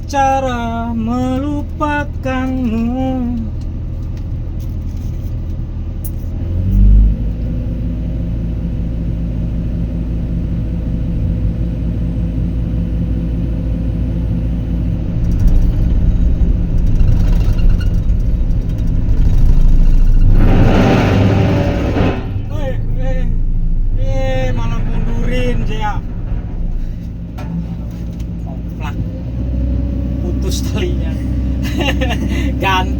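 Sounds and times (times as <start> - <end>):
excavator diesel engine under load: 0.0 - 32.9
rattling and clanking: 10.9 - 29.5.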